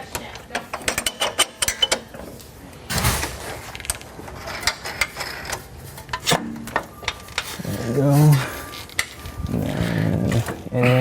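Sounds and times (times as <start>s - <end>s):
metal clicks and knocks of tools: 0.1s - 2.3s.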